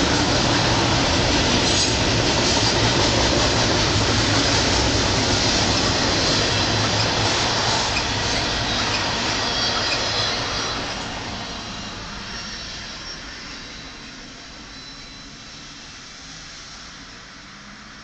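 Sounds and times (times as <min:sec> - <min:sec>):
train wheel and rail noise: 0:00.0 - 0:18.0
high wheel squeal: 0:05.2 - 0:16.4.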